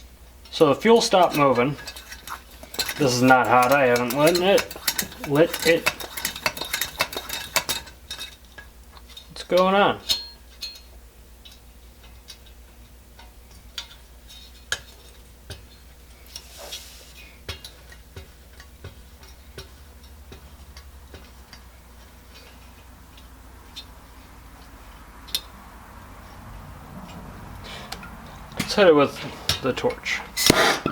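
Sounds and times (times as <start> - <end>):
clicks and taps of metal stove: 0.5 - 8.7.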